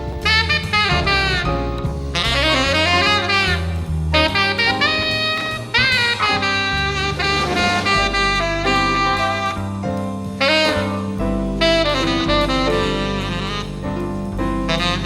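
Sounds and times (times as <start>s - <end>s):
bass line: 0.0s - 15.0s
jazz band playing: 0.0s - 15.0s
saxophone melody: 0.0s - 15.0s.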